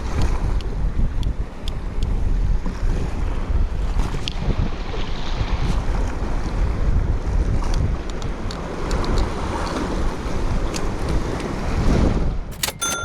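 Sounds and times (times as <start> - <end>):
wind buffeting microphone: 0.0 - 12.5
sharp clicks: 12.5 - 13.0
short high tone: 12.5 - 13.0.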